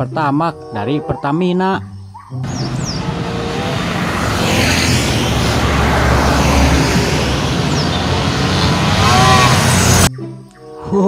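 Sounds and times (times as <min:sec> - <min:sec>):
truck diesel engine rumbling: 0:02.4 - 0:10.1.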